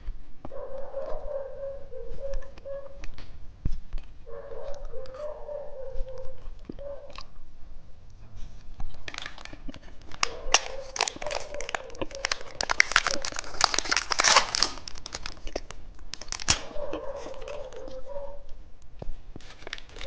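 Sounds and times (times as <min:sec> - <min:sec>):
candy wrapper crinkling and tearing: 0:08.8 - 0:18.1, 0:19.4 - 0:20.0.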